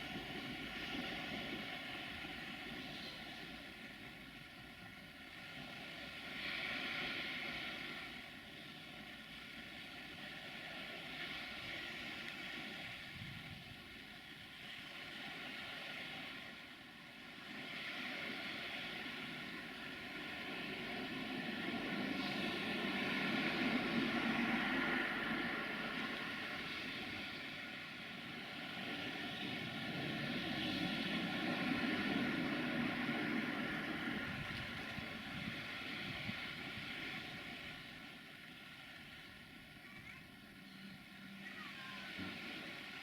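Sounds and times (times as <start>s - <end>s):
rushing noise: 21.8s - 27.6s.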